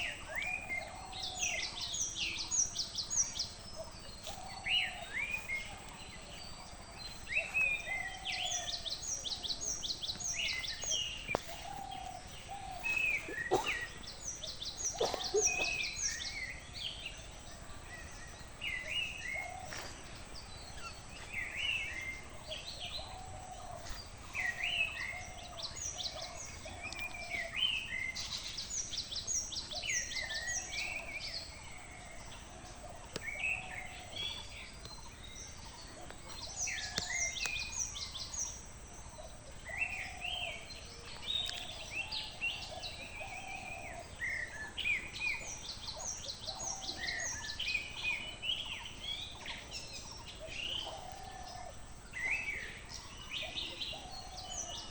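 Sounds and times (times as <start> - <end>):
lower repeated bird call: 10.4 - 17.1.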